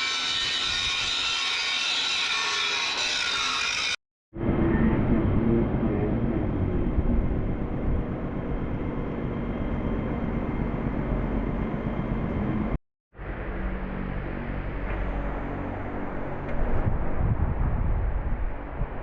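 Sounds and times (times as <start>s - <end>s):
low mechanical rumble: 4.4s - 19.0s.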